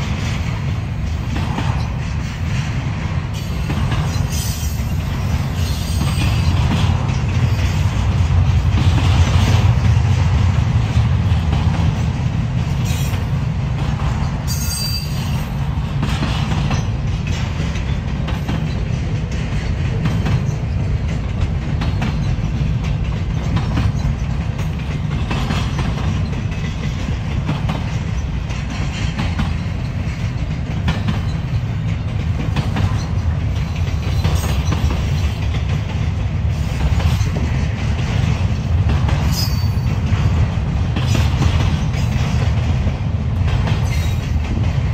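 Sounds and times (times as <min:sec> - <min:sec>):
freight train rumbling past: 0:00.0 - 0:44.9
wheels clicking over rail joints: 0:00.0 - 0:44.9
high wheel squeal: 0:14.5 - 0:15.6.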